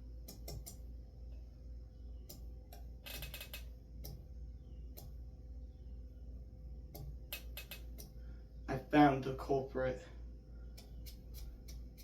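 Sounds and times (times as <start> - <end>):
steady low hum: 0.0 - 12.0
fan blades clicking: 6.9 - 8.2.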